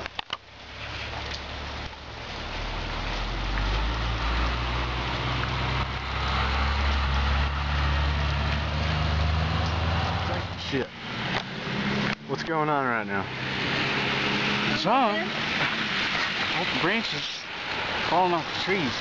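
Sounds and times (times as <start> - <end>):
vehicle engine droning: 0.5 - 18.8
continuous hiss: 10.4 - 19.0.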